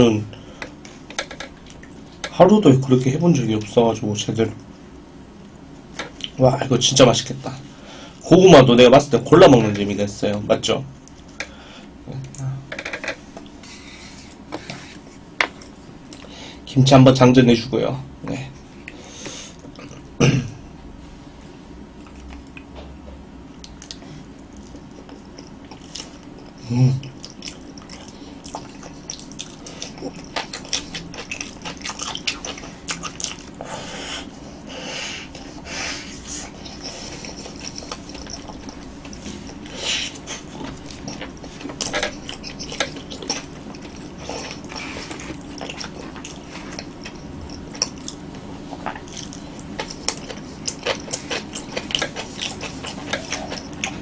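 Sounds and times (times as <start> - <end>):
wet chewing and smacking: 0.6 - 2.4, 23.5 - 54.0.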